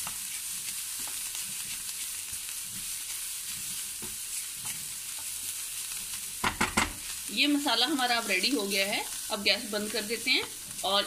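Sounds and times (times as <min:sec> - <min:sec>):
spatula scraping a pan: 0:00.0 - 0:07.2
masala sizzling in a pan: 0:00.0 - 0:11.0.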